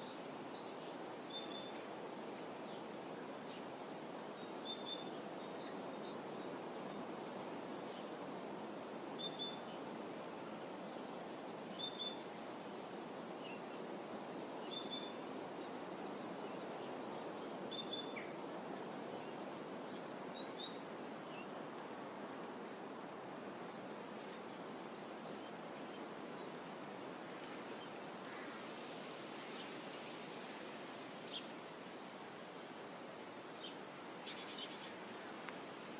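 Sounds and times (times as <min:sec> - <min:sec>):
soft outdoor ambience: 0:00.0 - 0:35.9
small birds chirping: 0:22.4 - 0:35.9.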